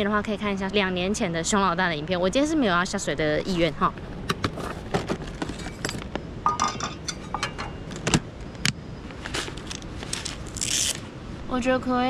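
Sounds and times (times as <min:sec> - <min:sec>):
small hard objects clinking: 0:05.5 - 0:08.0.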